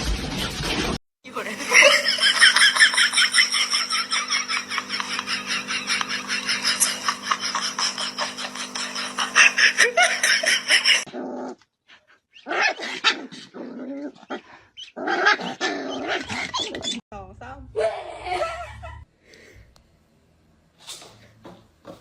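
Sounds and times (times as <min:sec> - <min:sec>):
dog barking and growling: 0:01.3 - 0:11.6, 0:12.4 - 0:16.6.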